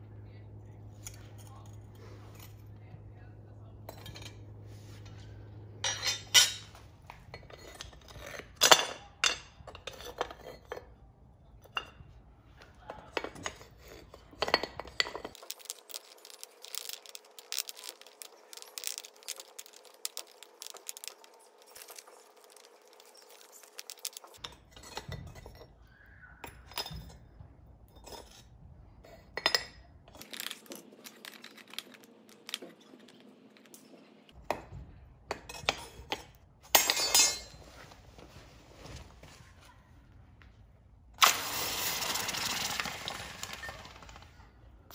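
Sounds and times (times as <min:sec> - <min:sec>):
metal ingots clinking and knocking: 0:05.8 - 0:10.9, 0:12.9 - 0:25.7, 0:35.3 - 0:37.6.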